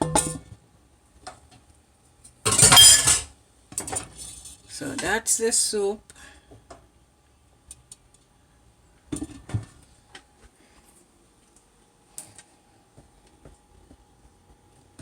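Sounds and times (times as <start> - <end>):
dishes and utensils clinking: 2.5 - 3.3.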